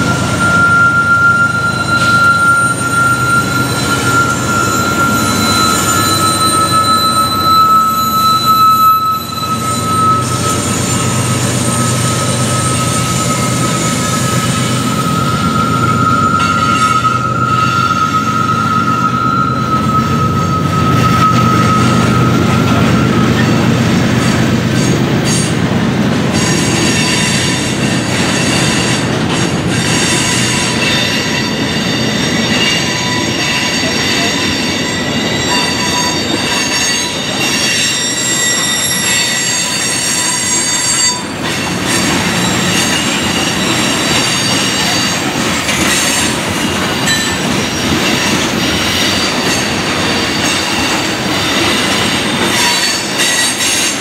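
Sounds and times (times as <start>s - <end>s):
wheel squeal: 0.0s - 25.5s, 26.3s - 54.0s
freight train rumbling: 0.0s - 54.0s.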